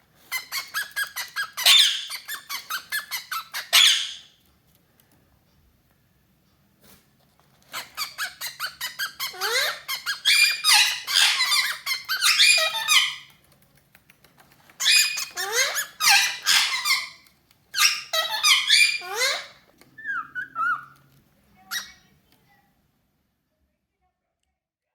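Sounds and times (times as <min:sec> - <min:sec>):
parrots chattering: 0:00.2 - 0:04.4, 0:07.6 - 0:13.4, 0:14.4 - 0:22.2.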